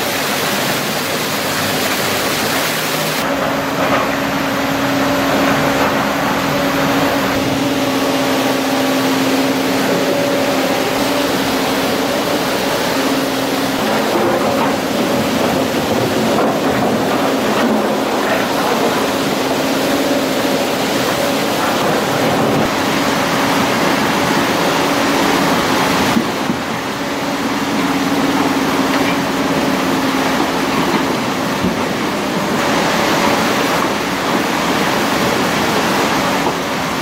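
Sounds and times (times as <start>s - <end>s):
excavator diesel engine droning: 0.0s - 37.0s.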